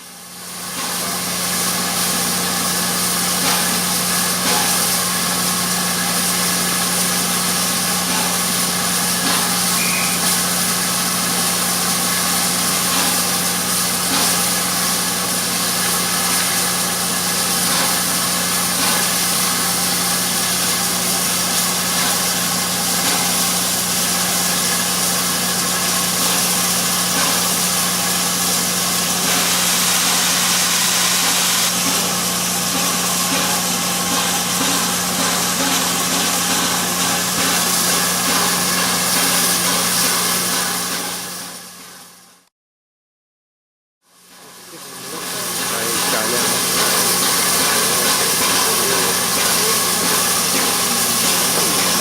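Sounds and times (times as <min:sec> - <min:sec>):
engine idling: 0:44.6 - 0:52.0.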